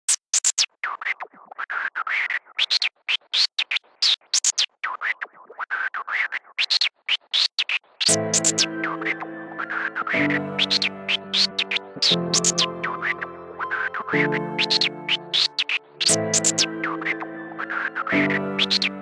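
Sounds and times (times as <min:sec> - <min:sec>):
electronic swooshing bursts: 0:08.1 - 0:19.0
synthesizer chord: 0:08.1 - 0:19.0.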